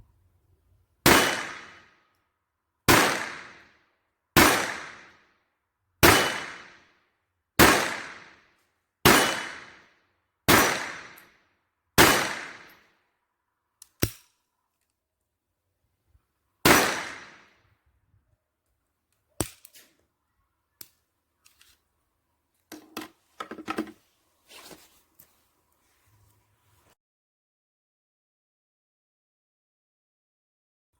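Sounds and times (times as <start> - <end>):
pistol shots with ringing echo: 1.1 - 1.9, 2.9 - 3.6, 4.4 - 5.2, 6.0 - 6.8, 7.6 - 8.4, 9.1 - 9.8, 10.5 - 11.2, 12.0 - 12.8, 16.6 - 17.5.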